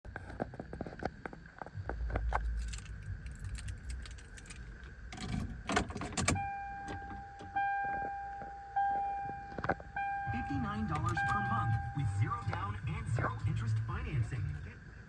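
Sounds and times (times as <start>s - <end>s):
keys jangling: 2.4s - 7.1s
dashboard warning chime: 6.2s - 13.8s.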